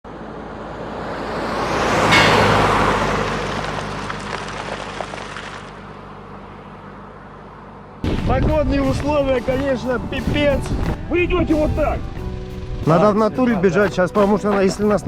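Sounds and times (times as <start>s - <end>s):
vehicle passing by: 0.1s - 8.0s.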